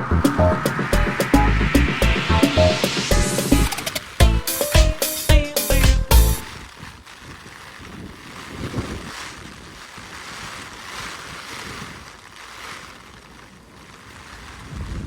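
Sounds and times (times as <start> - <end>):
gusty wind on microphone: 7.8 - 9.8, 14.4 - 15.0.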